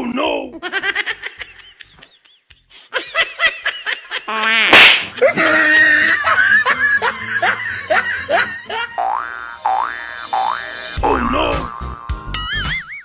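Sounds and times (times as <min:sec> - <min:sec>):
burst of laughter: 0:01.2 - 0:09.0
music: 0:05.8 - 0:13.0.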